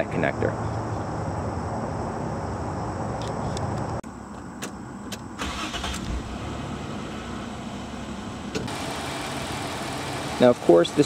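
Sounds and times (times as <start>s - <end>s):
car engine running: 4.1s - 11.0s
engine cranking and starting: 5.4s - 7.0s.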